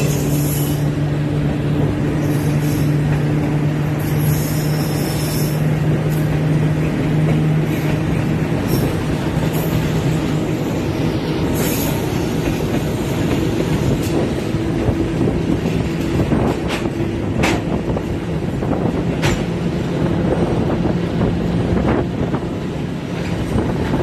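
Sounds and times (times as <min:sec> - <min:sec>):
high wheel squeals: 0:00.0 - 0:01.0, 0:02.1 - 0:03.1, 0:03.9 - 0:05.8
train wheels rumbling on rail: 0:00.0 - 0:24.0.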